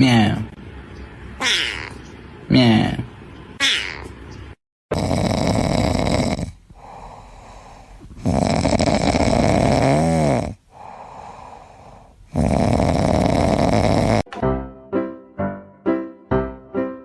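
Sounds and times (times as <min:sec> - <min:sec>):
pet snoring: 0:04.9 - 0:14.3.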